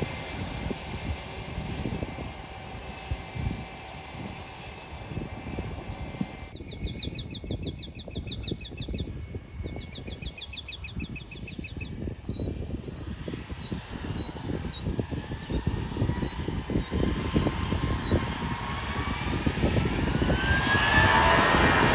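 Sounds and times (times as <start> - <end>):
distant jet engine whine: 0.0 - 21.9
low rumble: 0.0 - 21.9
bird trilling chirps: 6.5 - 14.9.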